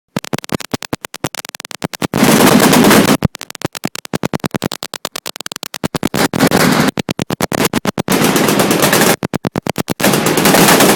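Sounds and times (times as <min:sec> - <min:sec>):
machine guns firing: 0:02.0 - 0:03.3, 0:05.8 - 0:10.9.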